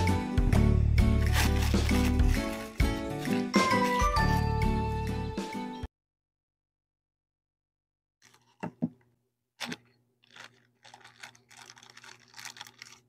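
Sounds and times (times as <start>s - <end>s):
packaging rustling: 1.2s - 4.0s, 9.6s - 13.0s
plastic pieces clicking: 9.6s - 13.0s.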